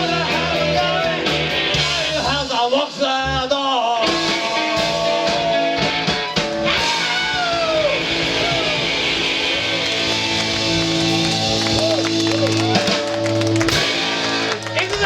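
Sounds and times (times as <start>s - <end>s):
live rock band playing: 0.0s - 15.0s
electric guitar notes bending: 3.0s - 14.8s.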